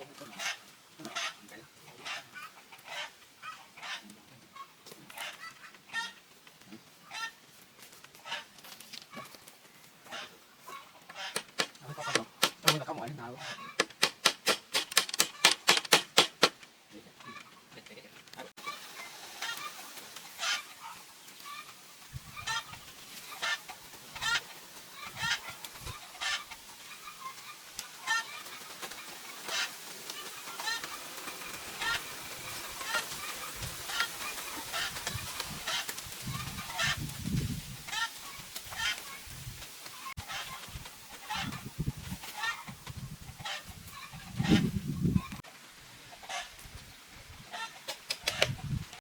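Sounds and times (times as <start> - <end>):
chickens clucking: 0.0 - 48.9
poultry calling: 10.0 - 16.6.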